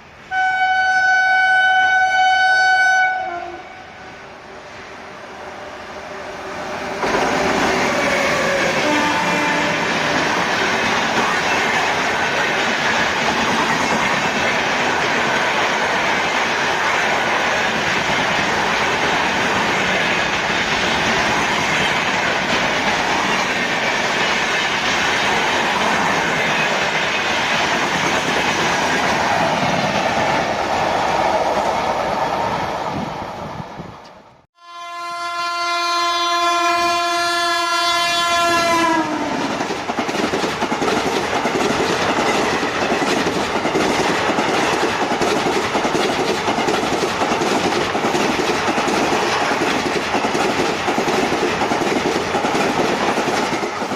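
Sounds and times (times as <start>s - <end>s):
train rushing past: 0.0s - 34.5s, 36.1s - 53.9s
train horn blast: 0.3s - 4.1s, 8.3s - 10.5s, 34.6s - 39.4s
wheels clattering on rails: 39.4s - 53.9s.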